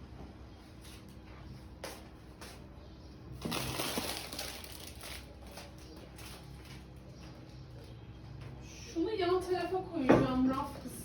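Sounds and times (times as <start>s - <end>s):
packages rustling and scraping: 0.7s - 7.7s.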